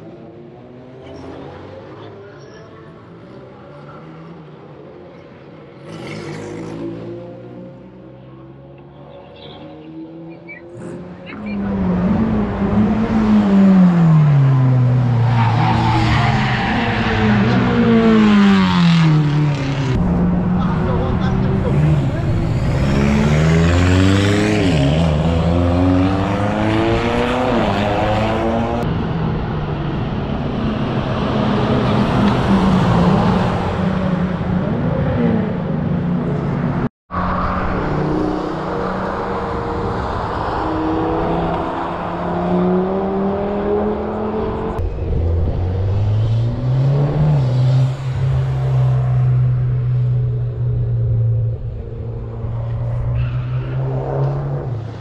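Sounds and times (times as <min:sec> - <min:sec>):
race cars revving and passing: 0:00.0 - 0:55.0.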